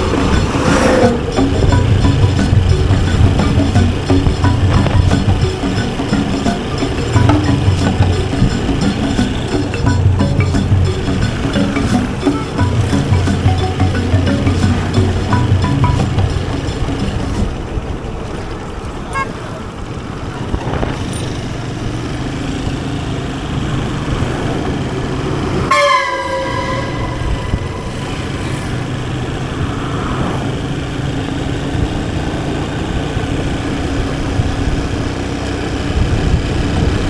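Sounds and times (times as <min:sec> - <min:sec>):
motorcycle engine and road noise: 0:00.0 - 0:37.0
vehicle horn blaring: 0:25.6 - 0:29.2.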